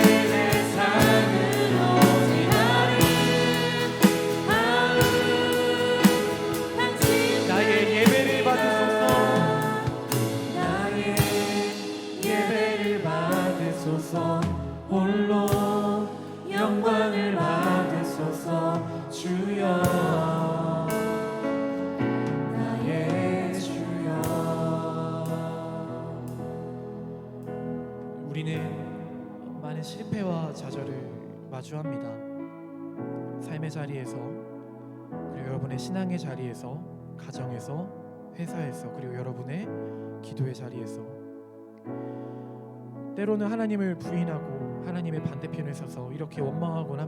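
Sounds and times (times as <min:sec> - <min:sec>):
voices singing gospel song: 0:00.0 - 0:27.2
instrumental accompaniment: 0:00.0 - 0:29.6.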